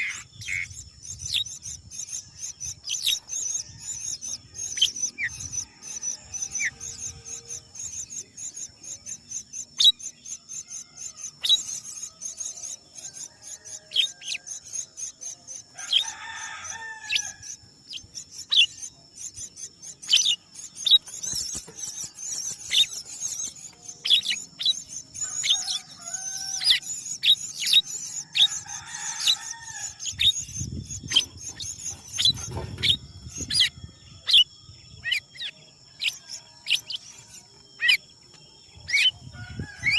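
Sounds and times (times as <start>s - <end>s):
bird chirps: 0.0s - 39.9s
high insect trill: 0.0s - 39.9s.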